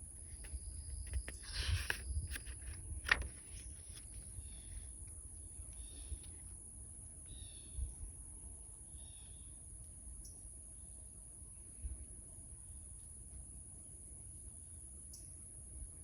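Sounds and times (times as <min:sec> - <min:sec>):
crickets droning: 0:00.0 - 0:16.0
paper rustling: 0:00.3 - 0:04.8.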